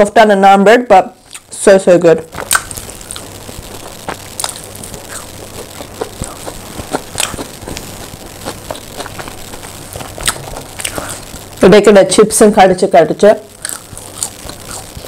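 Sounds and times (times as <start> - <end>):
chewing with soft crunches: 2.3 - 11.4, 13.6 - 15.0.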